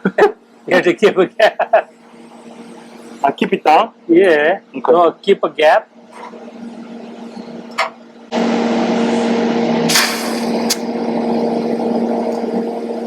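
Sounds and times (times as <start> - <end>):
welding arc cracks: 9.9 - 10.8.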